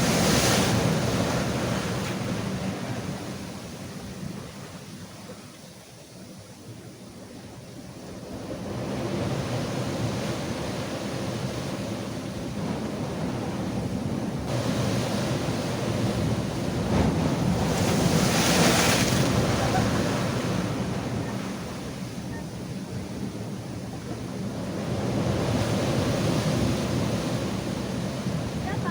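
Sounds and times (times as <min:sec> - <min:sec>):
wind buffeting microphone: 0:06.6 - 0:28.9
surf breaking on rocks: 0:14.5 - 0:22.0.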